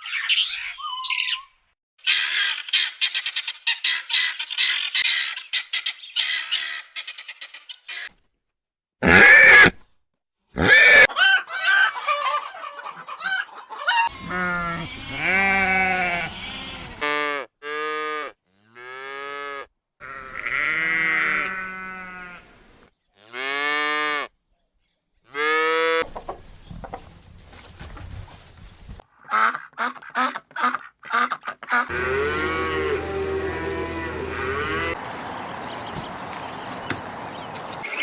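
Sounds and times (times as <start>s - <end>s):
squawking bird calls: 0.0s - 8.1s
sheep bleating: 9.0s - 9.7s, 14.1s - 19.0s, 20.0s - 22.5s, 31.9s - 35.0s.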